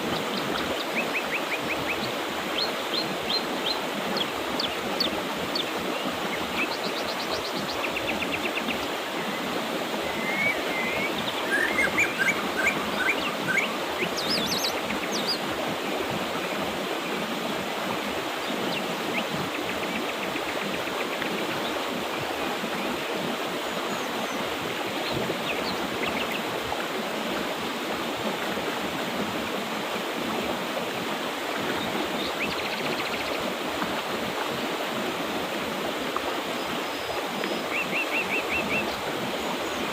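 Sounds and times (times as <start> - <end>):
birds chirping: 0.0 - 17.2, 18.3 - 26.5, 31.6 - 33.6
mountain river rushing: 0.0 - 39.9.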